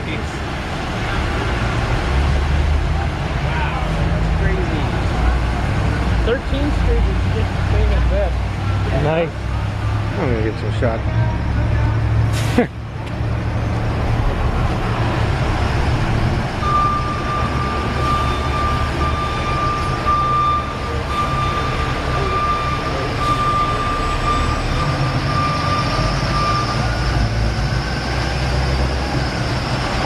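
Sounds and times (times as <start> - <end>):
motor vehicle rumbling: 0.0 - 30.0
faint beep: 16.6 - 27.0.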